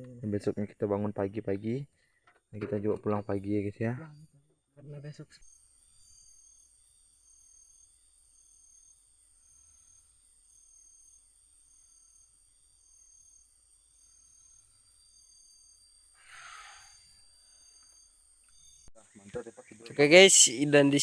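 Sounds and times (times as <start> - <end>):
crickets trilling: 5.0 - 21.0
pulsing insect call: 5.1 - 21.0.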